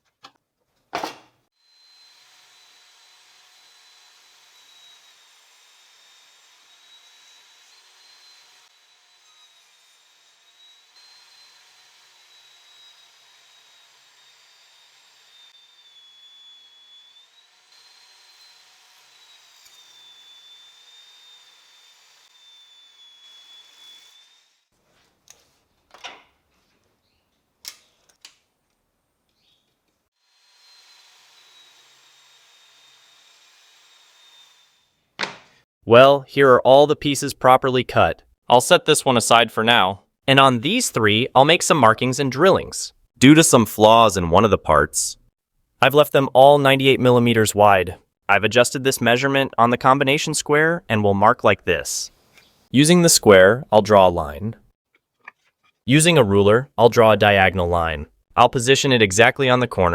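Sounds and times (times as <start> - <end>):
table saw whining: 1.5 - 24.7, 30.1 - 35.0.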